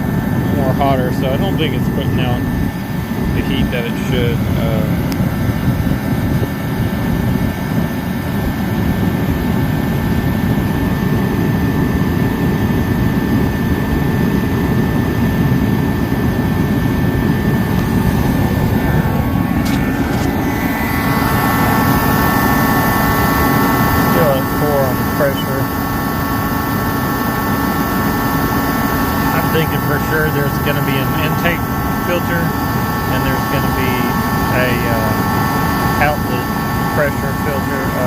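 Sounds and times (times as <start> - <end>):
heater fan and burner roaring: 0.0 - 38.0
high whine: 0.0 - 38.0.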